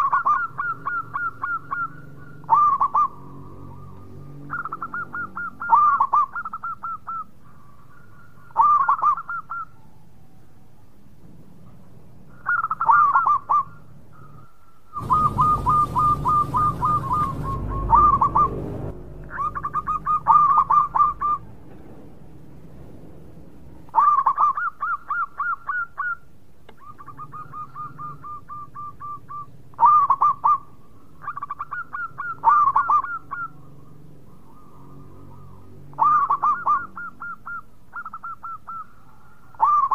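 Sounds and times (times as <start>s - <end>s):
doves cooing: 0.0s - 10.3s, 11.3s - 39.9s
rumbling noise: 15.0s - 23.9s.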